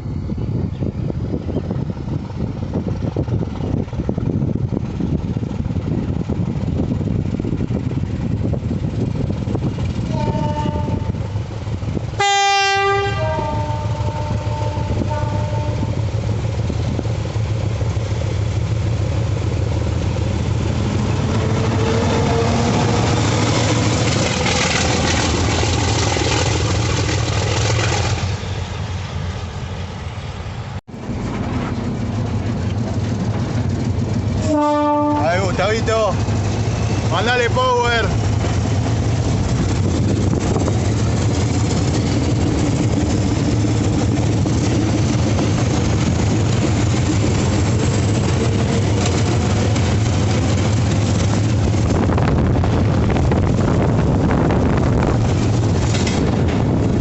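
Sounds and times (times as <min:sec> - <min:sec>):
locomotive diesel engine rumbling: 0:00.0 - 0:57.0
locomotive air horn: 0:10.1 - 0:11.2, 0:12.2 - 0:16.0, 0:34.4 - 0:35.4.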